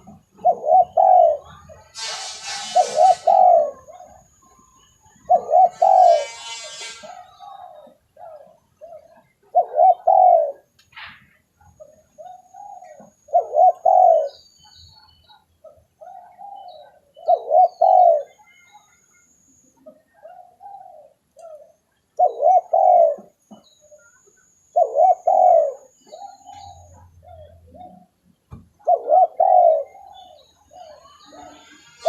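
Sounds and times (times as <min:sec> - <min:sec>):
dove cooing: 0:00.0 - 0:10.8, 0:11.6 - 0:19.0, 0:19.7 - 0:32.0.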